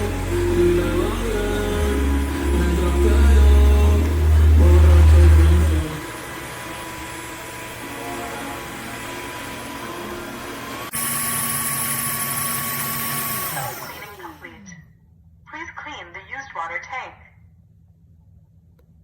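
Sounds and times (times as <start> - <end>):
vacuum motor hum with whine: 0.0 - 15.1.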